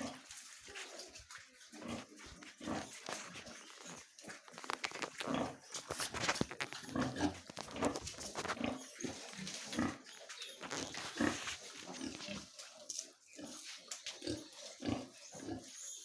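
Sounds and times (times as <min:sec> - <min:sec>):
pigs grunting: 0:00.0 - 0:00.3, 0:01.7 - 0:05.9, 0:06.7 - 0:12.6, 0:13.4 - 0:15.8.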